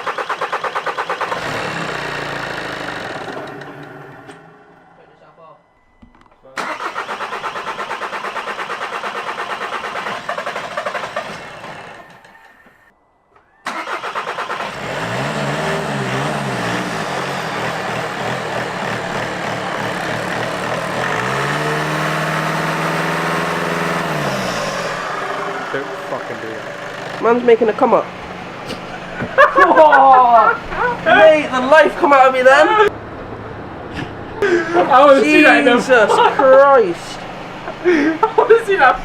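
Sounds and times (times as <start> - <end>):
starter motor cranking: 0.0 - 4.5, 6.6 - 12.8, 13.7 - 28.0
diesel engine idling and revving: 0.0 - 5.0, 6.6 - 12.9, 13.7 - 39.0.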